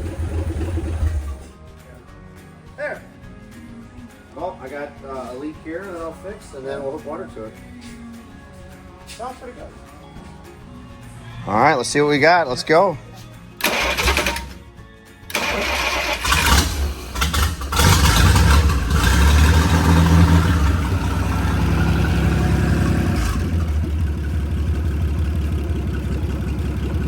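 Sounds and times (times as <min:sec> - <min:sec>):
boat engine starting and running: 0:00.0 - 0:01.6, 0:13.6 - 0:14.7, 0:15.3 - 0:27.0.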